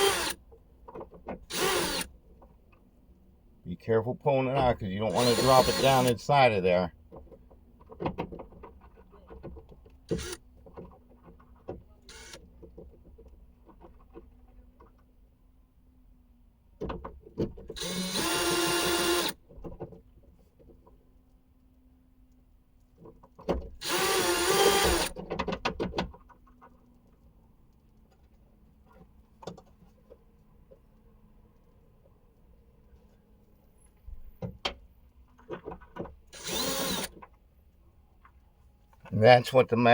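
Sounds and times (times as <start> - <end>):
cordless drill whining: 0.0 - 0.4, 1.5 - 2.1, 4.6 - 6.4, 10.1 - 10.4, 12.1 - 12.4, 17.8 - 19.4, 23.8 - 25.2, 36.3 - 37.2.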